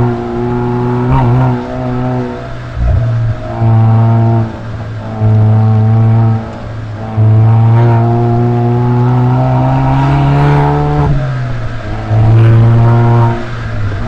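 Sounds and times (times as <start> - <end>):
car exhaust revving: 0.0 - 14.0.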